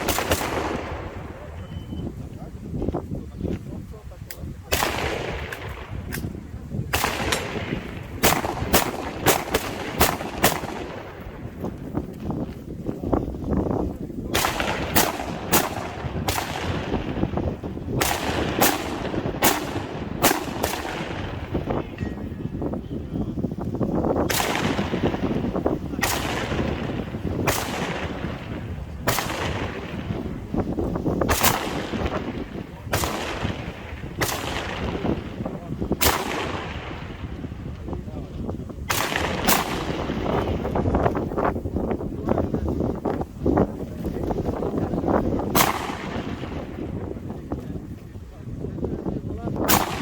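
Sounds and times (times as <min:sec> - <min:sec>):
rifle shots echoing: 0:00.0 - 0:02.0, 0:04.6 - 0:12.5, 0:14.2 - 0:22.3, 0:24.2 - 0:38.0, 0:38.8 - 0:41.2, 0:44.0 - 0:47.4, 0:49.6 - 0:50.0
steady low rumble: 0:00.0 - 0:50.0.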